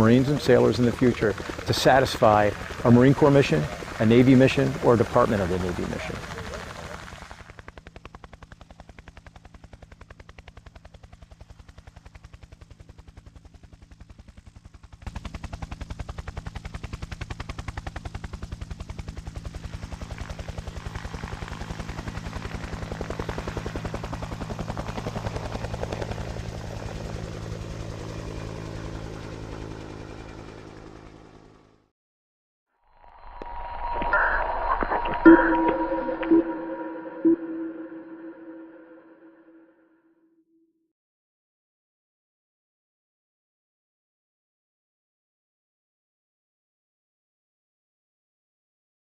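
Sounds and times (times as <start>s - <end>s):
helicopter engine hum: 0.0s - 31.8s
helicopter rotor chop: 0.0s - 31.8s.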